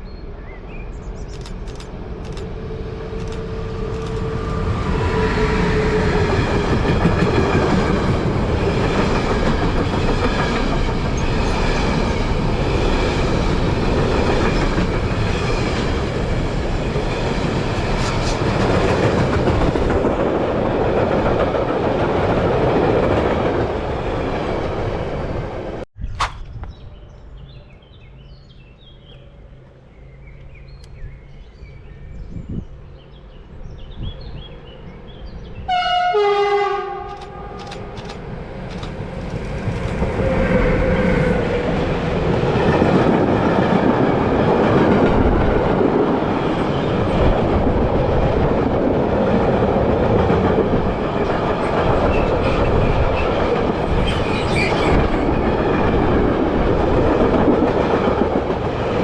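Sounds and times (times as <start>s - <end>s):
train wheels rumbling on rails: 1.1s - 25.8s, 35.1s - 59.0s
birds chirping: 26.4s - 35.8s
train horn blast: 35.6s - 38.0s.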